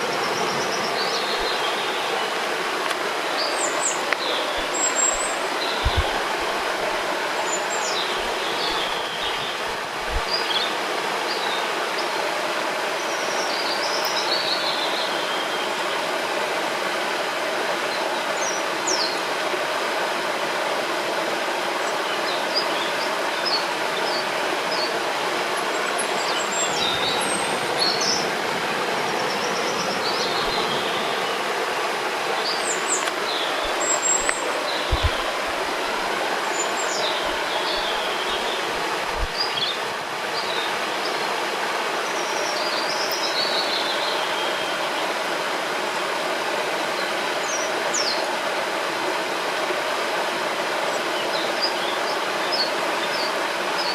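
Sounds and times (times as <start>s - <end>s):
small birds chirping: 0.0s - 12.1s, 25.6s - 31.5s, 32.2s - 41.2s
rushing river water: 0.0s - 53.9s.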